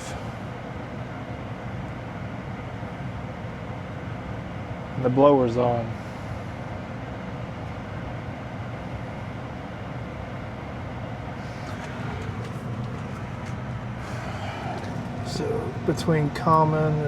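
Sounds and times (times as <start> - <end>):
blower motor humming: 11.1 - 17.0.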